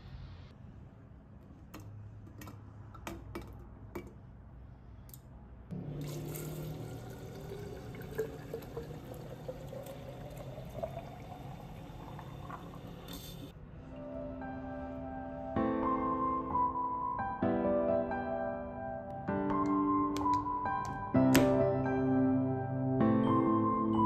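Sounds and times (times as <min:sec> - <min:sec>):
liquid pouring into container: 0:05.8 - 0:13.5.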